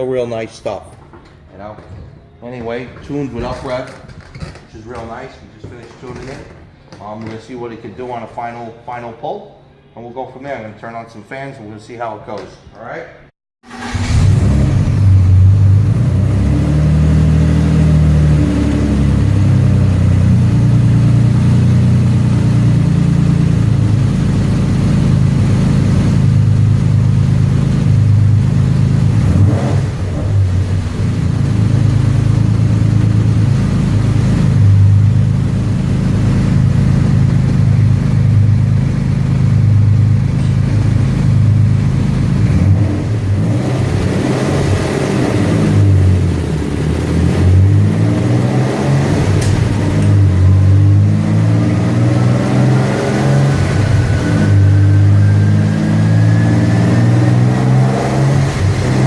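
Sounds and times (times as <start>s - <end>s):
car engine running on a dyno: 13.6s - 59.0s.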